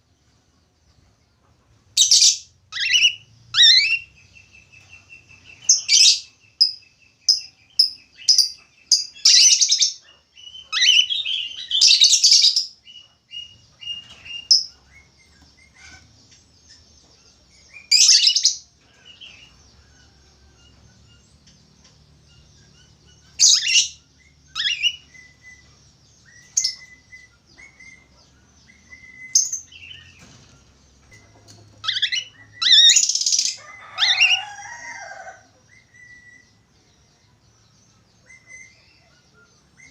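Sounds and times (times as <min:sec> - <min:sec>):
budgerigar chirping: 0:02.0 - 0:04.1, 0:22.8 - 0:25.0, 0:31.8 - 0:34.4.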